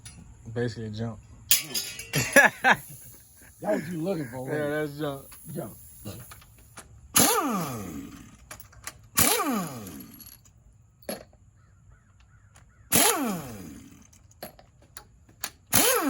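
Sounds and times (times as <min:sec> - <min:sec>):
impact wrench bursts: 0:01.5 - 0:10.4, 0:12.9 - 0:14.3, 0:15.6 - 0:16.0.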